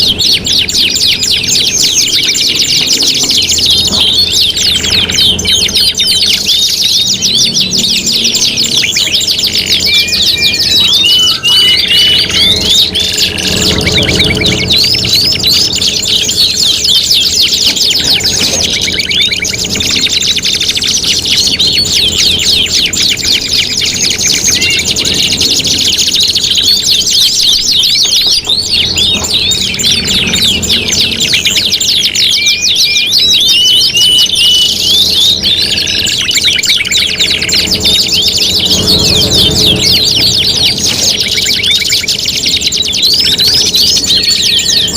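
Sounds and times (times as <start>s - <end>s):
canaries singing trills: 0.0s - 44.9s
short whistled notes: 3.6s - 16.8s.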